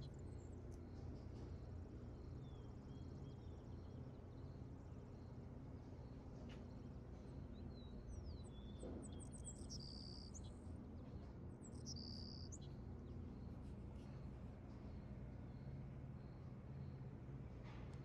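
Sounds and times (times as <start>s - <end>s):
faint low hum: 0.0s - 18.0s
bird-like chirps and whistles: 7.6s - 10.5s, 11.6s - 12.7s.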